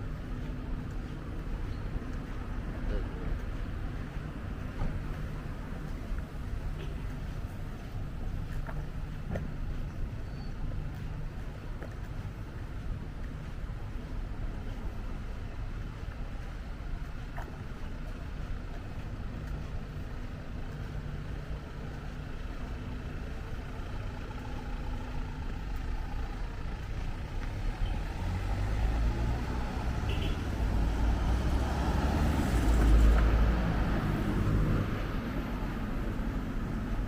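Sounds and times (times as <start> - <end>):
traffic engines and tyres rumbling: 0.0 - 37.0
vehicle passing close: 27.7 - 35.6.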